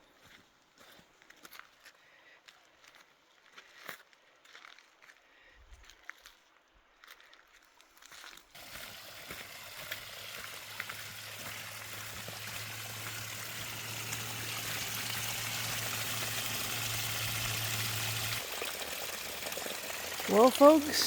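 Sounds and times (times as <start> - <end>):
spring water trickling and splashing: 8.5 - 21.0.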